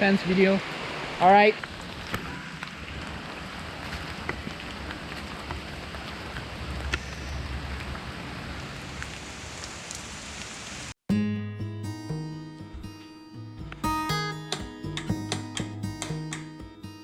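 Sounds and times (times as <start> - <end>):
heavy rain falling: 0.0 - 10.9.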